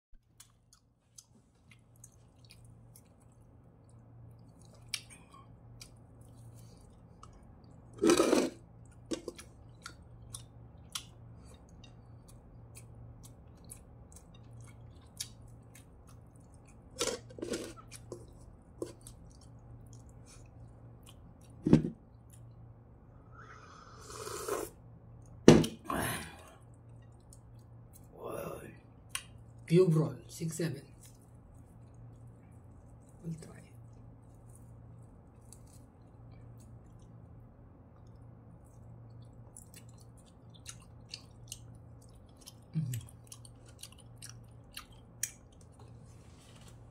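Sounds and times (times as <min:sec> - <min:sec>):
wet chewing clicks: 0:00.2 - 0:07.9, 0:08.8 - 0:17.0, 0:33.8 - 0:46.0
low steady hum: 0:00.2 - 0:46.9.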